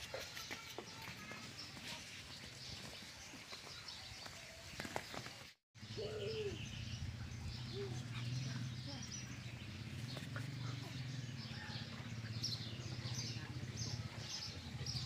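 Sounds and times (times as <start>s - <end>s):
birds chirping: 0.0s - 15.0s
low bird coo: 5.9s - 6.8s.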